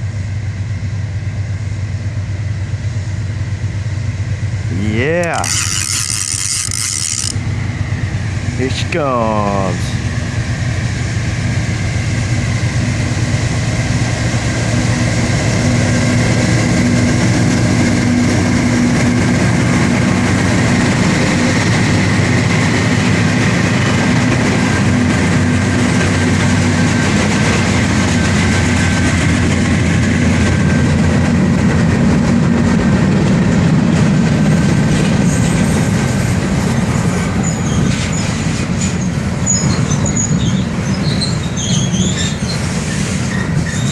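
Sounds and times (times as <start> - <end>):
diesel locomotive engines rumbling: 0.0 - 43.9
train wheels clattering on rails: 10.9 - 43.9.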